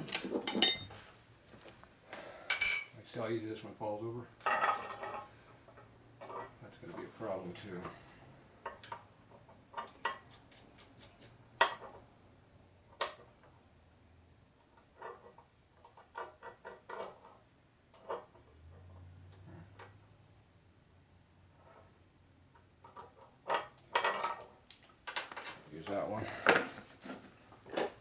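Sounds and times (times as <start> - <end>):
metal pieces clinking: 2.5 - 3.0.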